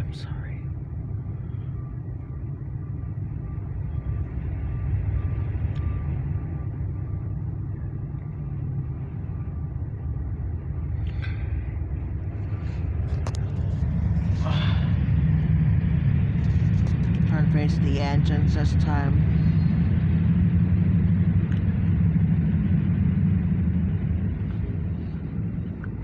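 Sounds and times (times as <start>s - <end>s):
freight train rumbling past: 7.7s - 26.0s.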